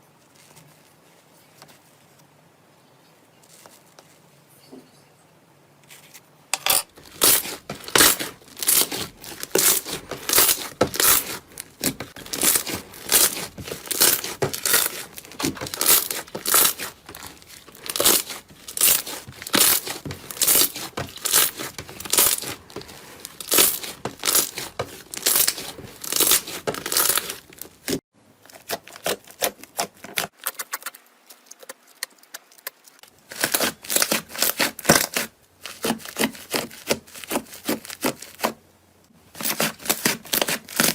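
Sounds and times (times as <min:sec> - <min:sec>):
slime squeezed crackling and popping: 0:07.0 - 0:22.7.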